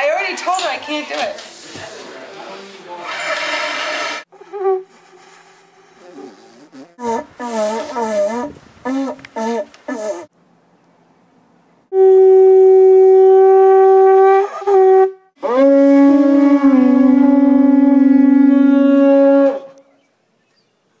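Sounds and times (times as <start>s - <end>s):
conch shell trumpet blasts: 11.9s - 19.8s.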